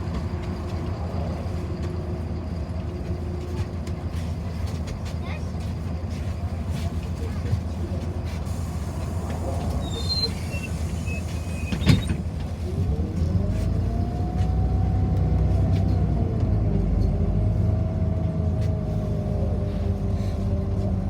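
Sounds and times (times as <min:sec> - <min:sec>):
bus engine accelerating: 0:00.0 - 0:21.0
low rumble of bus ride: 0:00.0 - 0:21.0.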